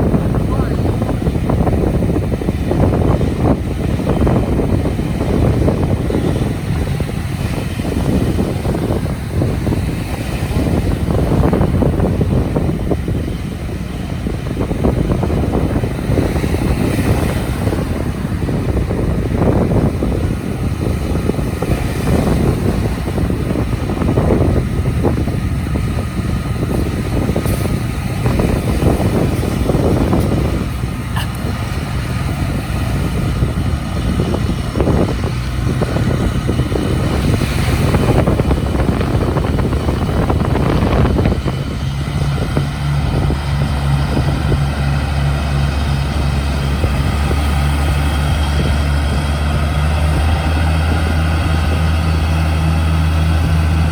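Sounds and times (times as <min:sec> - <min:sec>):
surf: 0:00.0 - 0:53.9
tractor engine running: 0:00.0 - 0:53.9
wind: 0:00.0 - 0:53.9.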